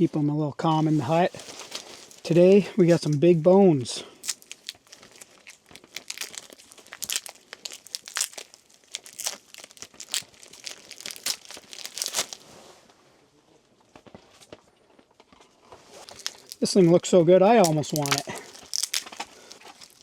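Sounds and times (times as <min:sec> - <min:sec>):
wrapper tearing and crinkling: 0:00.8 - 0:03.2, 0:04.0 - 0:12.6, 0:15.8 - 0:20.0.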